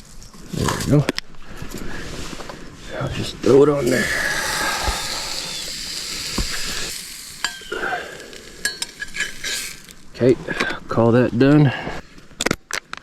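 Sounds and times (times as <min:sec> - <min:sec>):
food sizzling in a pan: 0:03.8 - 0:10.2.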